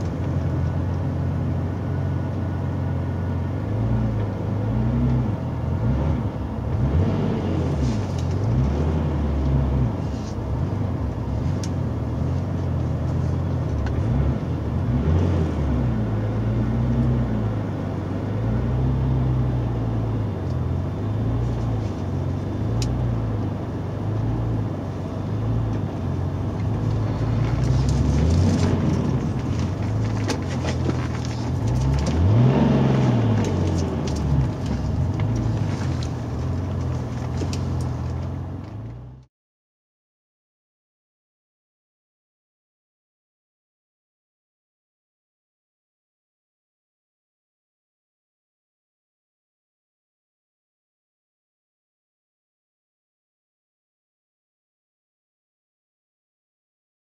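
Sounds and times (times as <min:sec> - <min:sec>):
car engine at low revs: 0:00.0 - 0:39.3.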